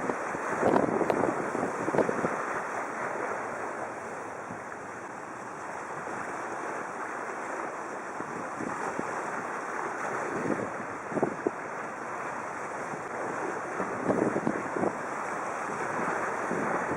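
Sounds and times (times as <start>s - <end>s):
wind on microphone: 0.0s - 4.7s, 8.1s - 16.9s
waves washing on shore: 0.0s - 16.9s.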